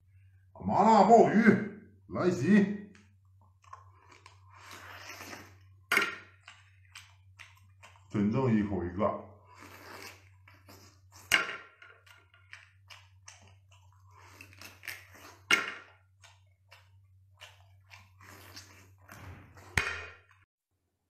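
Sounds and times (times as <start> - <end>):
wet chewing and mouth clicks: 2.9 - 8.2, 9.4 - 11.3, 11.9 - 19.8.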